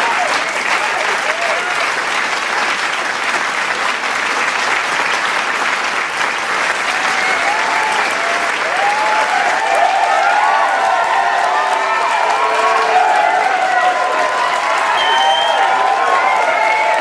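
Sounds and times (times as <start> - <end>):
voices cheering: 0.0 - 2.0, 6.8 - 17.0
crowd applauding: 0.0 - 17.0.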